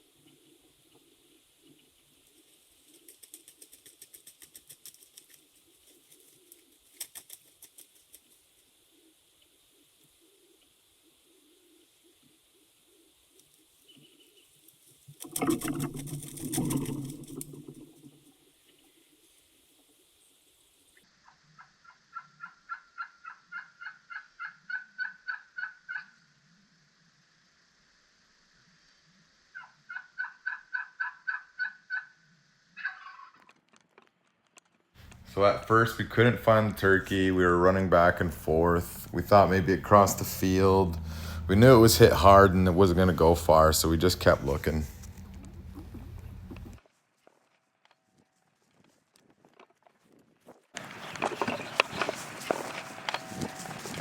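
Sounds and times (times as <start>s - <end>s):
raspy turkey call: 21.3s - 26.2s, 29.6s - 32.2s, 32.8s - 33.4s, 37.4s - 46.6s
turkey yelping: 21.6s - 26.1s, 29.6s - 32.1s, 32.8s - 33.4s, 38.2s - 46.8s
low hum: 35.0s - 46.8s
dove cooing: 38.2s - 46.8s
close rustling and knocks: 50.8s - 54.0s.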